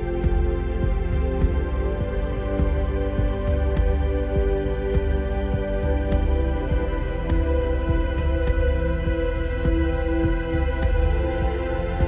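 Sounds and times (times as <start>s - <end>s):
background music with held tones: 0.0s - 12.0s.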